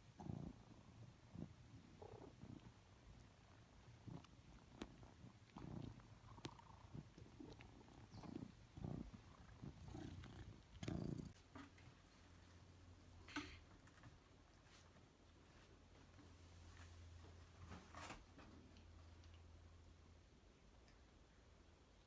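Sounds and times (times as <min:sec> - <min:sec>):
cat purring: 0:00.0 - 0:12.9.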